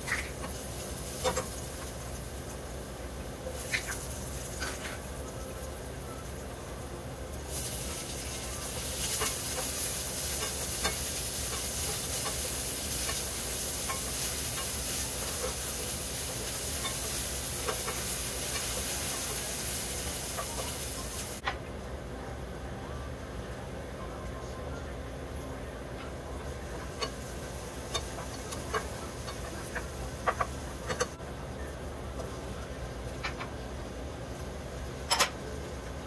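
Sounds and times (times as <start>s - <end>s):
onions sizzling in hot oil: 0.0s - 3.0s, 3.6s - 5.6s, 6.2s - 21.4s, 26.5s - 31.2s
spatula scraping a pan: 9.0s - 20.8s.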